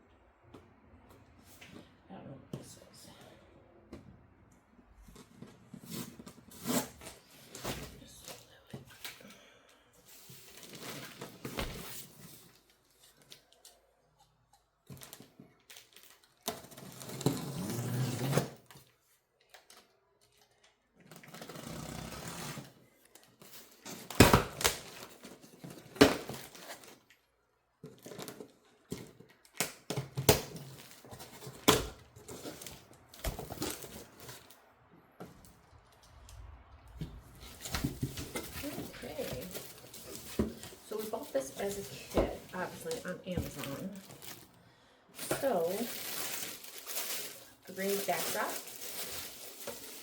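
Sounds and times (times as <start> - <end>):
packaging rustling and tearing: 10.1 - 13.8, 14.8 - 27.2, 27.9 - 34.6, 35.6 - 44.6, 45.2 - 50.0.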